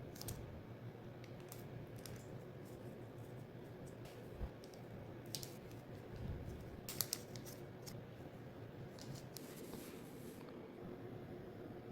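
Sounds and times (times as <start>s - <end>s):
paper crackling: 6.5s - 8.0s.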